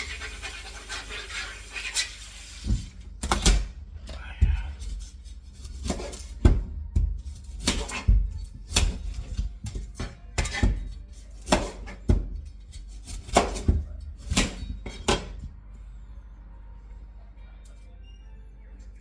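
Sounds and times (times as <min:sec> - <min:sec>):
utensils and dishes knocking: 0:04.4 - 0:15.5.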